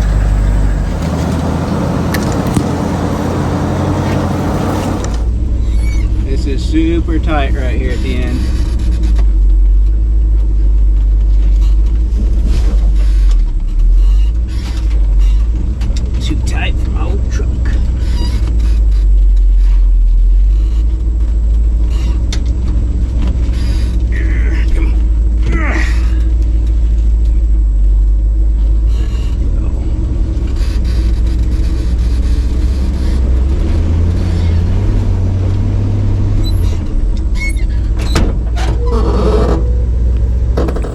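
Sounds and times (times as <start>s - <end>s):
truck engine low rumble: 0.0s - 40.9s
short knocks or scrapes: 40.5s - 40.9s.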